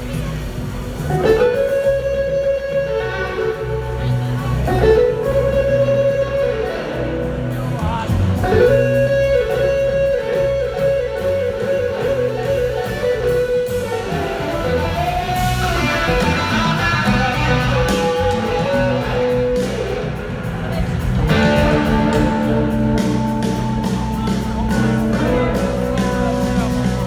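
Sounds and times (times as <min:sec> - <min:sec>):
blues-rock band playing: 0:00.0 - 0:27.0
electric guitar sliding notes: 0:00.0 - 0:27.0.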